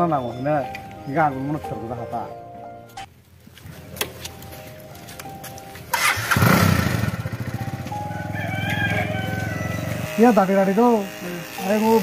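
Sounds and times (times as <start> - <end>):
motorcycle engine starting and idling: 5.8 - 12.0.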